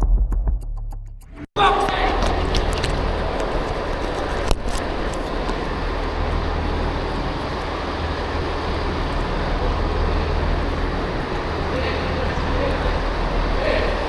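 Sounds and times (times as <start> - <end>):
train rumbling: 1.6 - 14.0.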